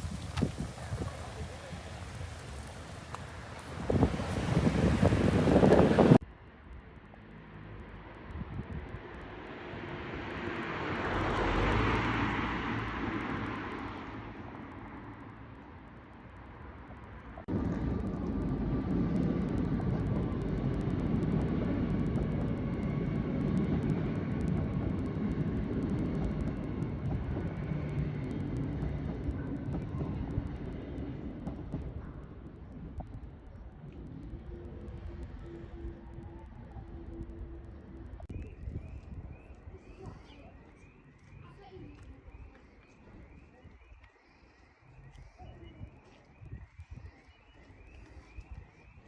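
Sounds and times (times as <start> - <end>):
vehicle passing: 0.0 - 6.2, 7.2 - 15.8
steady low rumble: 12.7 - 44.0.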